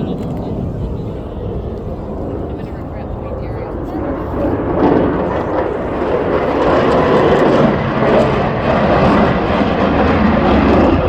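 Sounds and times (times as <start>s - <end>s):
aircraft engine rushing: 0.0s - 11.0s.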